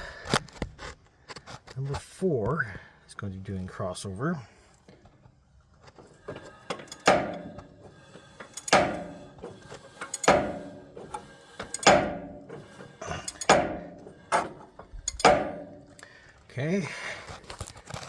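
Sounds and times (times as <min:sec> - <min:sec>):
wrench metallic clanks: 0:06.1 - 0:16.1.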